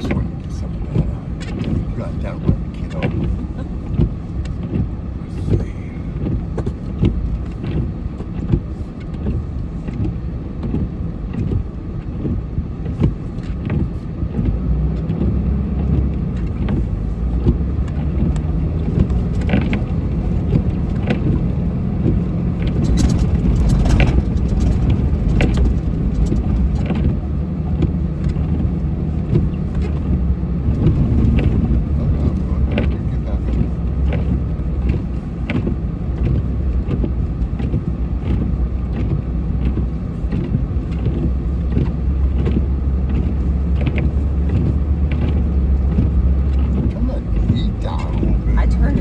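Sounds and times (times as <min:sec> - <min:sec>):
plow pushing snow: 0:00.0 - 0:49.0
truck engine running under load: 0:14.7 - 0:49.0
knocks and scrapes: 0:15.9 - 0:49.0.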